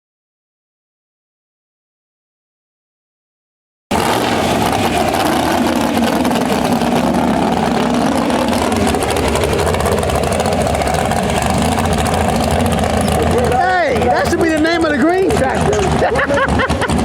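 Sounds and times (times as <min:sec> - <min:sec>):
tractor engine running: 0:03.9 - 0:17.0.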